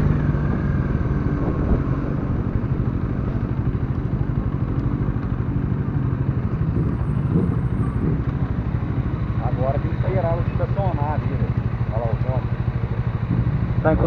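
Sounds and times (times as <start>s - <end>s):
motorcycle engine running at low revs: 0.0s - 14.0s.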